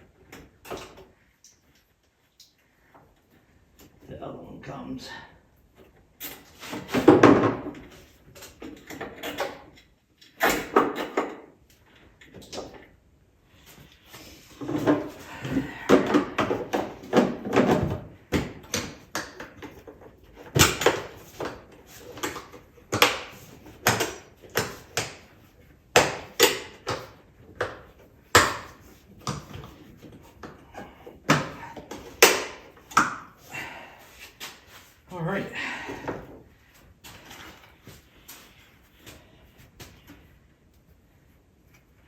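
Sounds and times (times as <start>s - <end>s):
parts and tools knocking: 14.6s - 33.3s.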